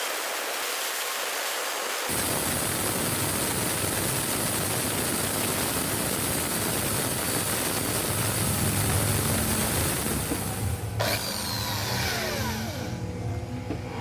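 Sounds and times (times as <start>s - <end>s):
power tool running: 2.1s - 13.7s
low hum: 7.1s - 14.0s.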